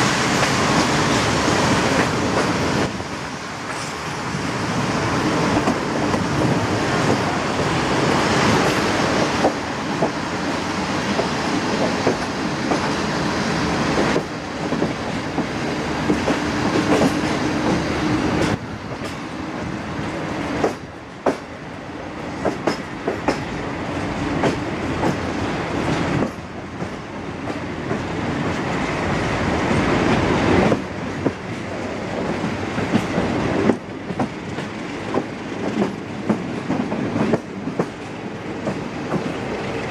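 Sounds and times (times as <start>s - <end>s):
train rumble: 0.0s - 39.9s
wheels clicking over rail joints: 14.0s - 19.3s.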